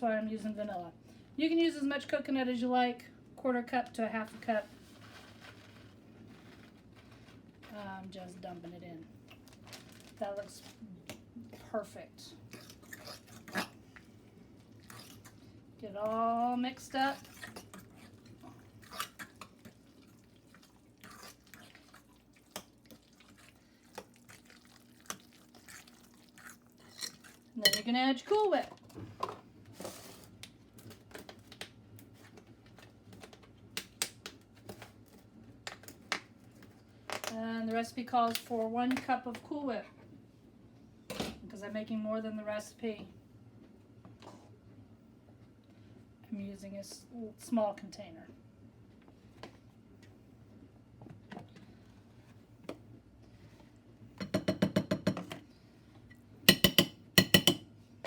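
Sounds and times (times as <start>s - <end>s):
utensil clinking against bowl: 26.8s - 27.9s, 56.5s - 57.6s.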